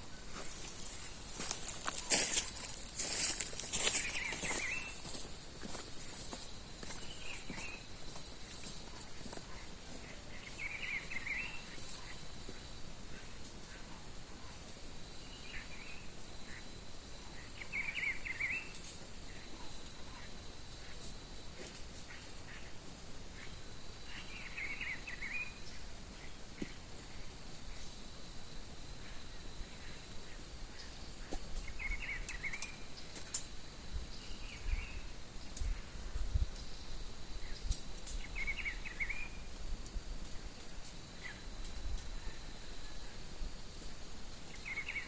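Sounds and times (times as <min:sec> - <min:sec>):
high-pitched insect drone: 0:00.0 - 0:45.0
birds chirping and warbling: 0:00.1 - 0:14.6, 0:15.2 - 0:21.0, 0:22.0 - 0:27.9, 0:29.1 - 0:33.2, 0:37.4 - 0:39.5, 0:44.5 - 0:45.0.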